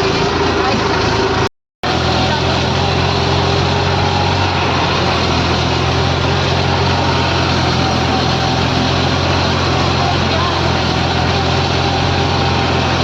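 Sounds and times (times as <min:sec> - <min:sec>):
construction machine engine running: 0:00.0 - 0:13.0.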